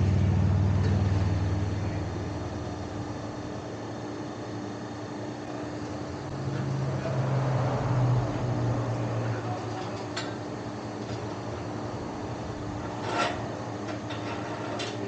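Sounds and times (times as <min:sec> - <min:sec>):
vehicle engine running: 0:00.0 - 0:03.1, 0:05.5 - 0:13.0.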